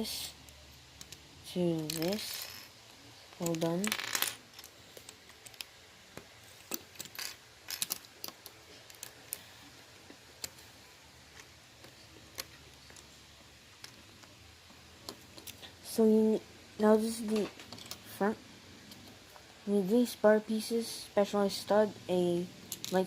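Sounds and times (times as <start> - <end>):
plastic bricks clicking: 3.4 - 9.4.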